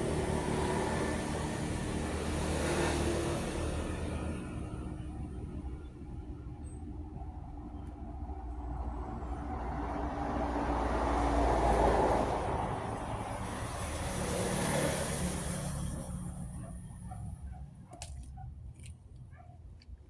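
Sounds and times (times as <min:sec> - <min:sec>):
vehicle passing by: 0:00.0 - 0:05.1, 0:08.4 - 0:17.3.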